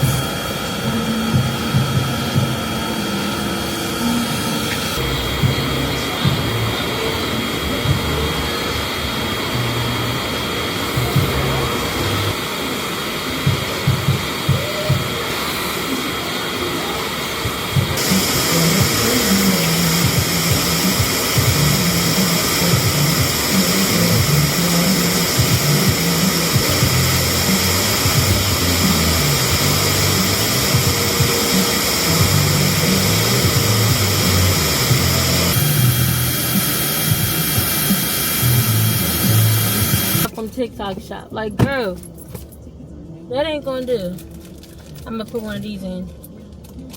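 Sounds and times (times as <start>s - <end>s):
car wash air dryers blowing: 0.0s - 40.4s
music with stepping bass line: 25.2s - 40.3s.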